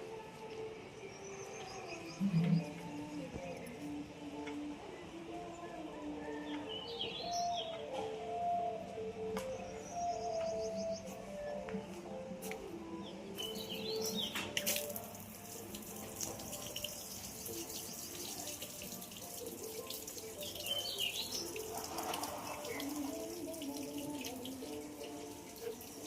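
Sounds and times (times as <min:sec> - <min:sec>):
birds chirping: 0:00.9 - 0:04.0, 0:09.4 - 0:11.6, 0:12.9 - 0:15.6, 0:16.2 - 0:26.0
running water rushing: 0:13.6 - 0:26.0.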